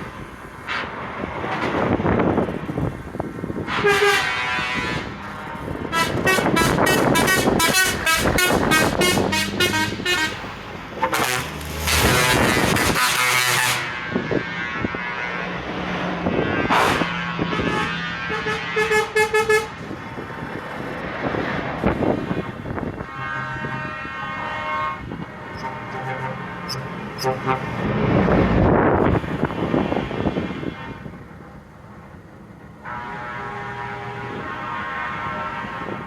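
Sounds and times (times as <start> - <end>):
trucks passing: 0.0 - 36.0
truck air horns blowing: 3.5 - 15.5, 16.3 - 20.0, 21.8 - 28.2, 29.1 - 31.2, 32.8 - 36.0.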